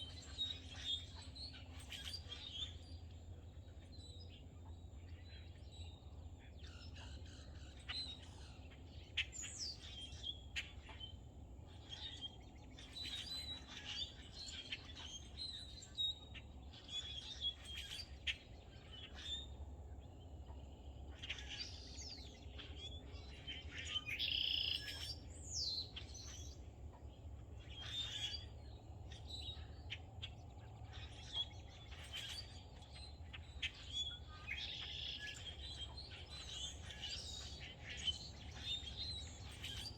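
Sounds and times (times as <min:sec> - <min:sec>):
steady low hum: 0:00.0 - 0:24.2
birds chirping and singing: 0:00.0 - 0:39.9.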